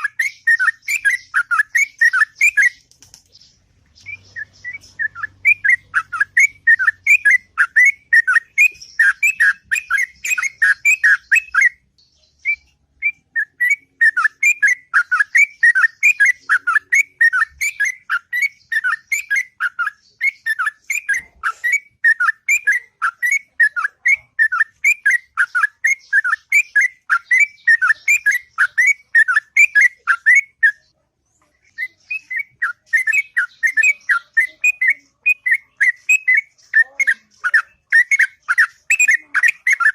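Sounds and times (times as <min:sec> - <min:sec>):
bird singing whistled notes: 0:00.0 - 0:31.0, 0:31.6 - 0:39.9.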